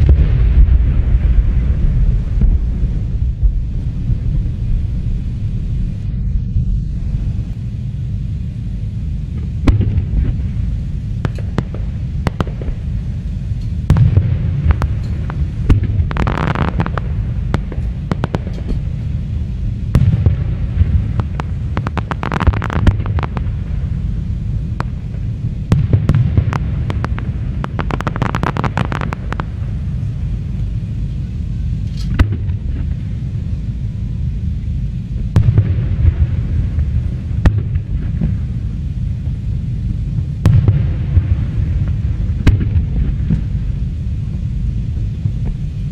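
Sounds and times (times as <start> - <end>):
fireworks booming: 0.0 - 45.9
fireworks sharp bangs: 9.3 - 30.6, 32.0 - 34.0, 35.3 - 39.4, 40.1 - 45.7
fireworks crackling: 9.3 - 31.2.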